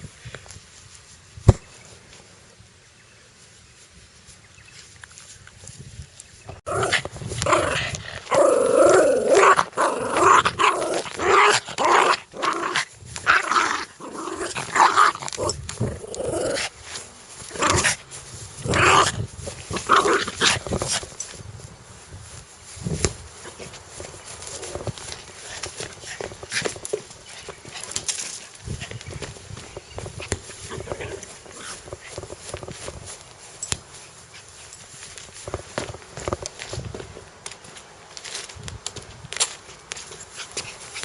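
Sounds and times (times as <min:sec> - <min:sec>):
dog growling: 0:06.7 - 0:16.8.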